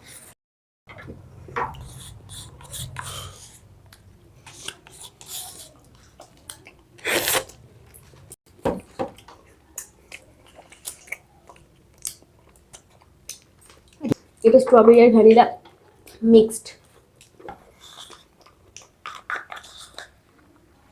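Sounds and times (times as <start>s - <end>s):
wet licking and chewing: 1.7s - 8.1s, 9.2s - 14.2s, 16.8s - 20.7s.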